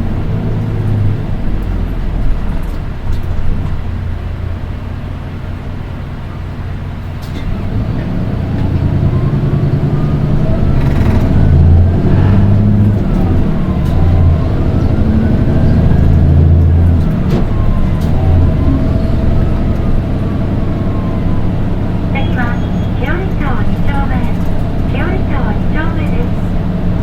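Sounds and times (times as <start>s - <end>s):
bus diesel engine: 0.0s - 27.0s
high-pitched engine whine: 5.6s - 27.0s.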